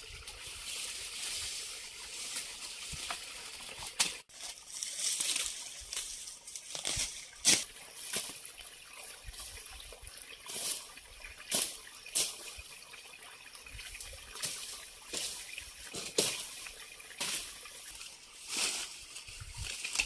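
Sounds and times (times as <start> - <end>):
water trickling: 0.0 - 20.0
water splashes: 6.6 - 20.0.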